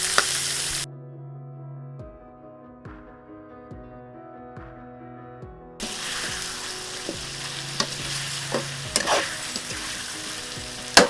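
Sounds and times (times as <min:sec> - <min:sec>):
chicken sizzling in hot oil: 0:00.0 - 0:00.9, 0:05.8 - 0:11.0
utensil clacking against a pan: 0:05.8 - 0:11.0
utensil scraping a pan: 0:05.8 - 0:11.0.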